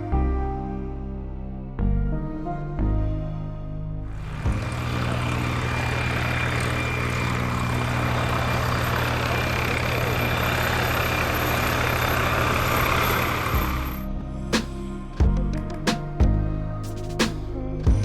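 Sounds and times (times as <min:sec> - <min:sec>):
large vehicle engine hum: 0:04.1 - 0:17.4.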